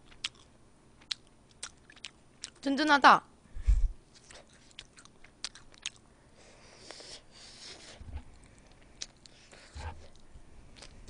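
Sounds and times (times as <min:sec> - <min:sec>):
close chewing: 0:00.0 - 0:02.6, 0:04.2 - 0:06.1
wet mouth clicks and smacks: 0:00.1 - 0:02.6, 0:04.2 - 0:06.0.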